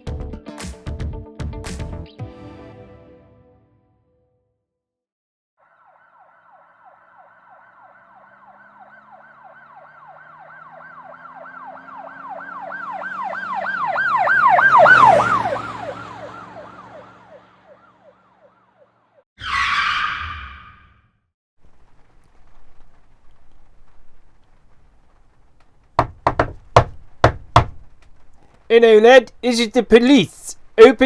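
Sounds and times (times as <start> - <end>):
police siren yelping: 5.6 - 21.0.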